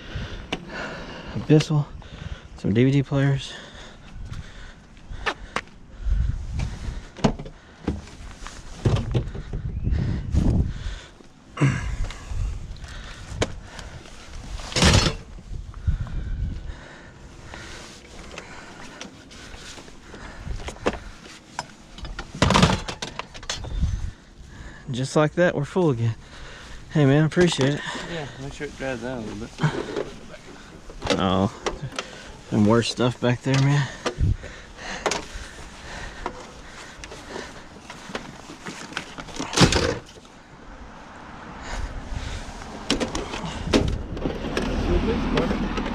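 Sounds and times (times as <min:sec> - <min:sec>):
junk knocking and clattering: 0:08.8 - 0:09.7, 0:14.7 - 0:15.3, 0:20.2 - 0:23.8.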